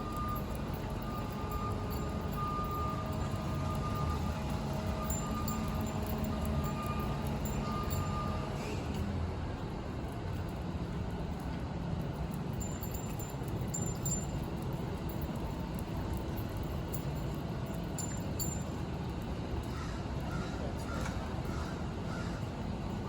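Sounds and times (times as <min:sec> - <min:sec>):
faint high tinkles: 0:00.0 - 0:09.0, 0:12.0 - 0:19.7
traffic rumble: 0:00.0 - 0:23.0.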